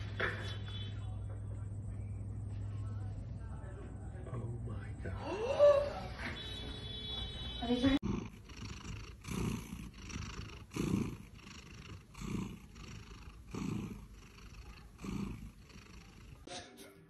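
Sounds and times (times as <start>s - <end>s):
cat purring: 8.0s - 16.5s.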